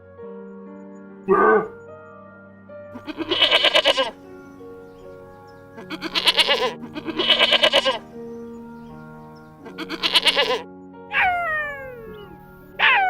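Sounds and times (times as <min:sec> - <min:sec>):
background music: 0:00.0 - 0:13.0
goat bleating: 0:01.3 - 0:01.8, 0:03.0 - 0:04.3, 0:05.8 - 0:08.3, 0:09.6 - 0:13.0.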